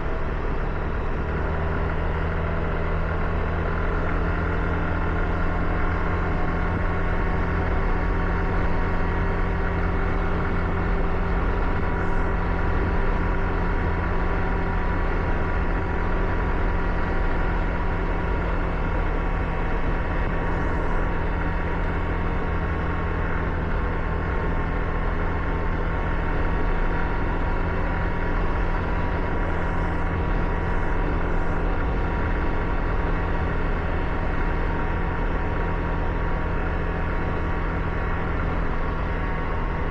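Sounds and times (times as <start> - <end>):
car engine hum: 0.0 - 39.9
tyres on wet road: 26.0 - 39.9.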